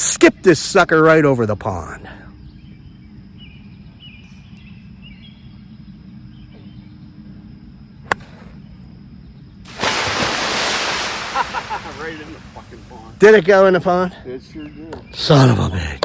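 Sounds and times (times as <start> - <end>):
birds chirping: 9.7 - 16.0.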